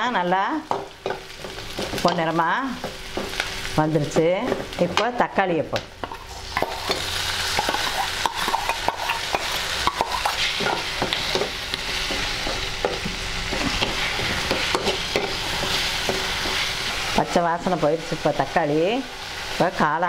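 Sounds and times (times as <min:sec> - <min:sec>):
vegetables sizzling in hot oil: 0:00.0 - 0:20.0
metal spoon scraping and stirring: 0:06.1 - 0:17.4.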